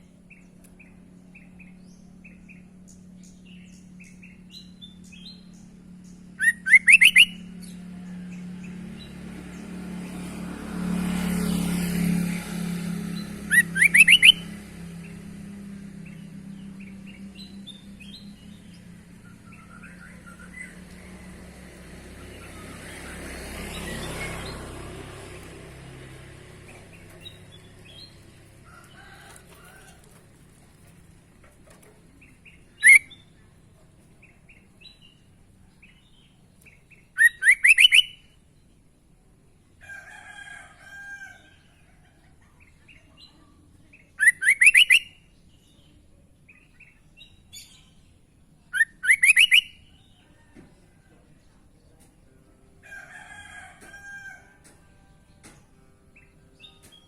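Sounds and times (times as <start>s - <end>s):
bulbul calling: 6.4s - 7.8s, 13.5s - 14.5s, 31.8s - 35.2s, 35.8s - 38.4s, 44.2s - 45.2s, 48.7s - 50.2s.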